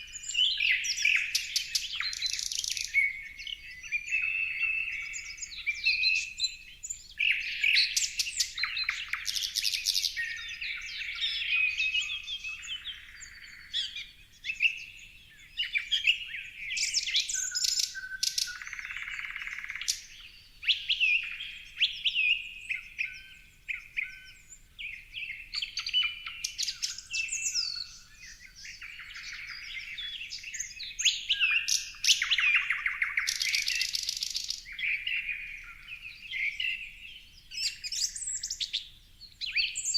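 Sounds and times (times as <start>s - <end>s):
songbirds chirping and singing: 0.0s - 39.9s
fast rattling bird trills: 0.6s - 3.0s.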